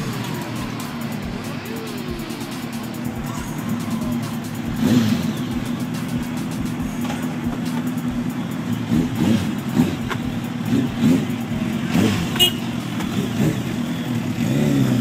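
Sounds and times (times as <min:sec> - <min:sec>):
vehicle engines revving: 0:00.0 - 0:15.0.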